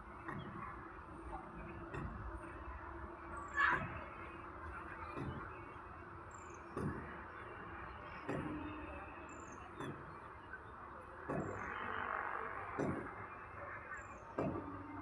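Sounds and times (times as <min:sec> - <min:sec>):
steady background noise: 0:00.0 - 0:15.0
regular knocks: 0:06.7 - 0:07.3, 0:12.7 - 0:13.3.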